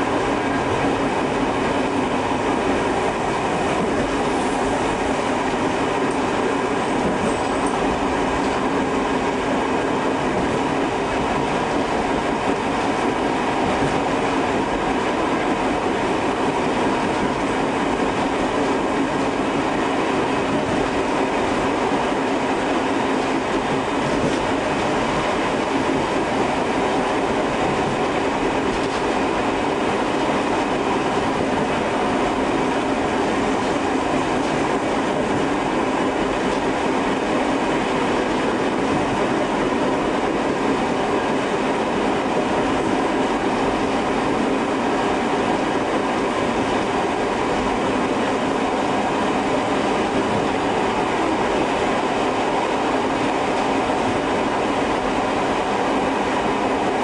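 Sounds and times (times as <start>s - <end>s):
electric train rumbling: 0.0s - 57.0s.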